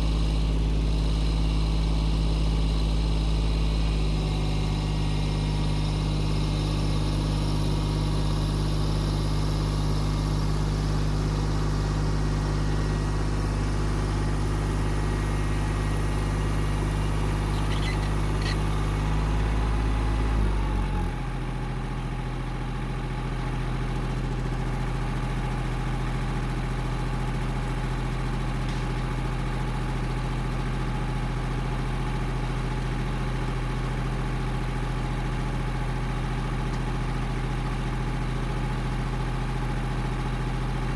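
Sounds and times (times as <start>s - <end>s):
small tractor engine running: 0.0s - 40.9s.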